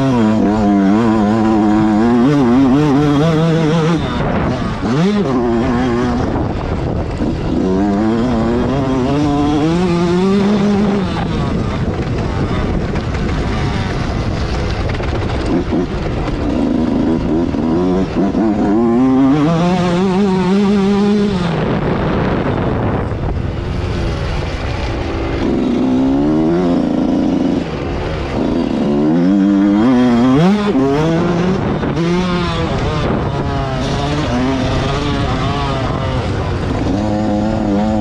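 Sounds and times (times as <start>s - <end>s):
motocross bike engine revving: 0.0s - 38.0s
wind and track noise: 0.0s - 38.0s.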